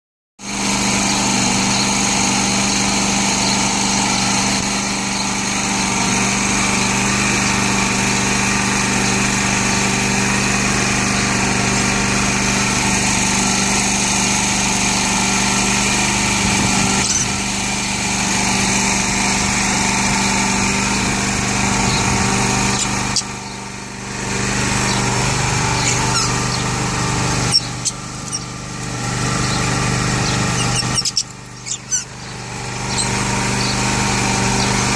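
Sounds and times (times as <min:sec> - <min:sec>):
steady machine hum: 0:00.5 - 0:34.9
lovebirds chirping and squeaking: 0:16.7 - 0:17.4, 0:21.8 - 0:23.7, 0:24.8 - 0:26.7, 0:27.4 - 0:33.9.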